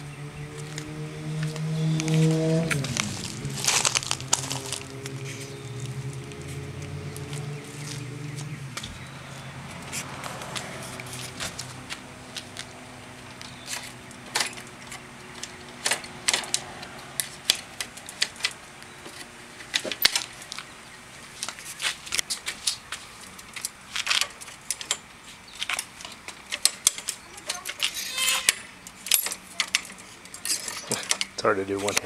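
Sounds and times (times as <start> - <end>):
equipment clicking and rattling: 9.9 - 20.7, 21.4 - 32.0.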